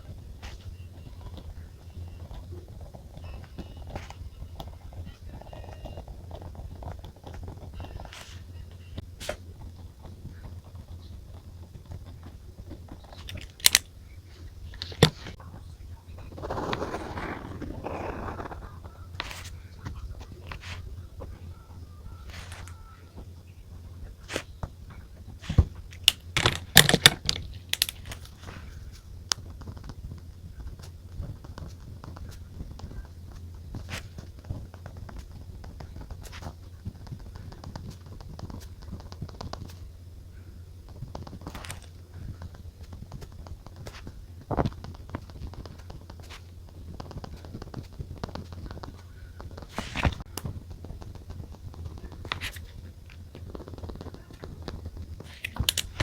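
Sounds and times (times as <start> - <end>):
faint steady hum: 0.0 - 56.0
pen and paper scratching: 16.2 - 19.6, 22.2 - 22.8.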